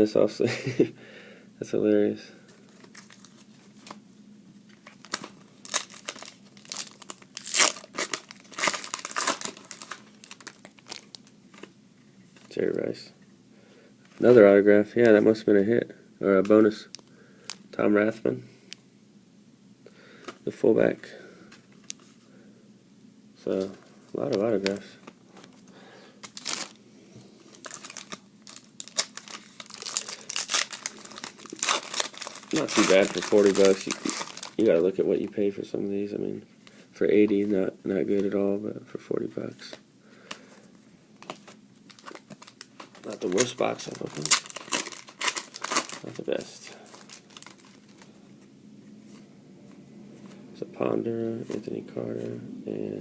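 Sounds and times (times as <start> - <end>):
cards being handled: 2.5 - 4.0
card pack wrapper tearing and crinkling: 2.7 - 4.0, 4.8 - 11.7, 26.2 - 26.8, 27.5 - 35.0, 41.2 - 48.1.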